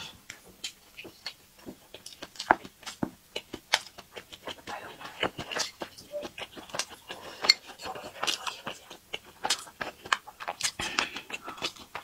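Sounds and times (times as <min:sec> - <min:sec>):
wet chewing mouth clicks: 0:00.0 - 0:12.0.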